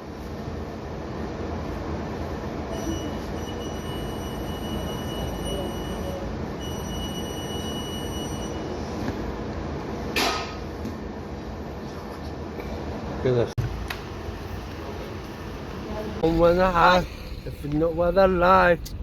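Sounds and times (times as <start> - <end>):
vehicle rumbling: 13.6 - 19.0
thin high whine: 13.9 - 19.0.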